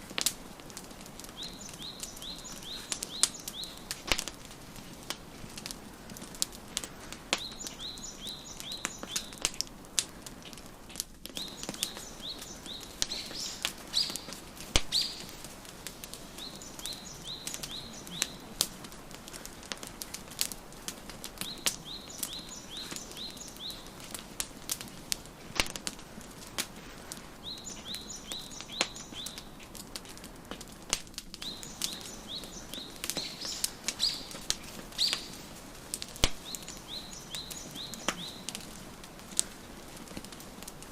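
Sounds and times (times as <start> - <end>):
wood fire crackling: 0.0 - 40.9
songbird chirping: 0.8 - 5.2, 6.0 - 9.7, 11.3 - 25.0, 27.1 - 29.7, 31.4 - 39.3.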